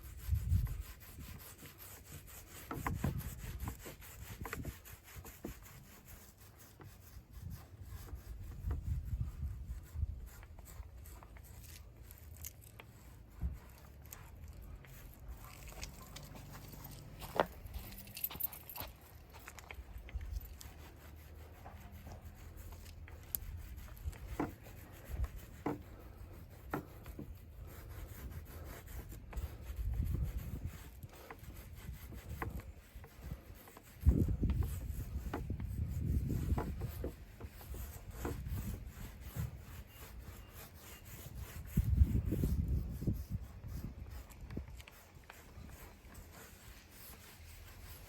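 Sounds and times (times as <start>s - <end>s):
rubbing on wood: 0.0s - 48.0s.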